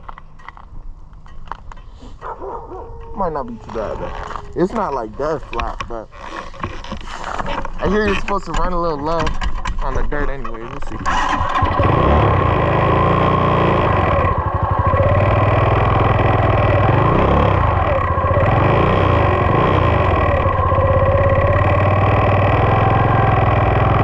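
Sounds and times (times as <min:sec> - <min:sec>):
high whine: 0:10.7 - 0:24.0
dirt bike engine running: 0:10.9 - 0:24.0.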